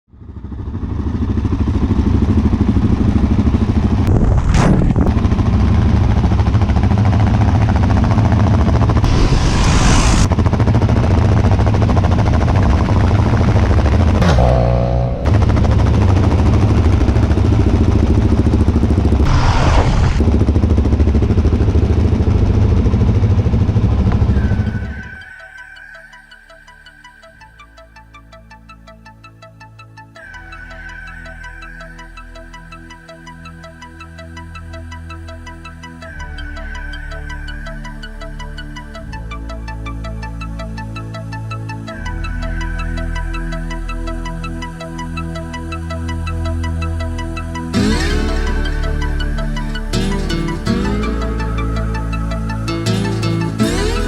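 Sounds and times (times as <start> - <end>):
motorcycle engine running: 0.1 - 25.2, 43.4 - 54.0
whooshing swells: 9.0 - 10.4, 19.2 - 20.4.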